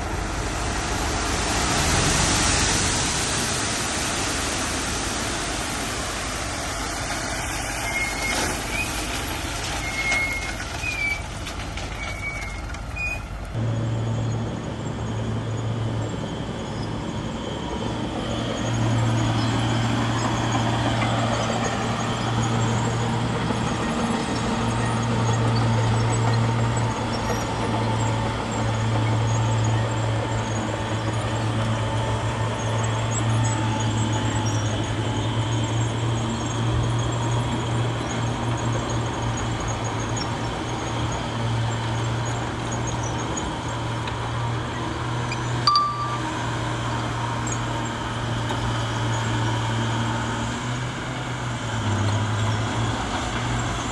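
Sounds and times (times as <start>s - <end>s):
heavy diesel machinery running: 0.0s - 53.9s
short high chirps: 45.7s - 46.9s.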